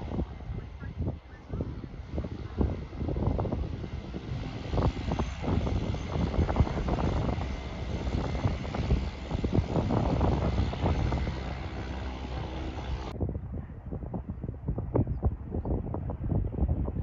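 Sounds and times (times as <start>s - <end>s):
propeller airplane engine: 0.0s - 13.2s
wind buffeting microphone: 0.0s - 17.0s.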